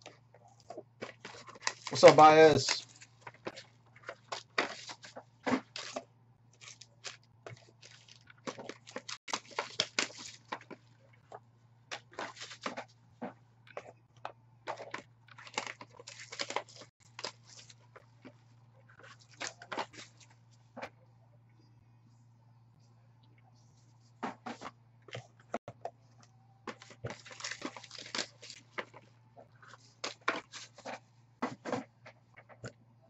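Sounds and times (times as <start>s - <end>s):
low electrical hum: 0.0s - 33.0s
packaging crinkling and tearing: 1.0s - 6.0s, 6.6s - 10.8s, 14.7s - 17.8s, 26.7s - 29.0s.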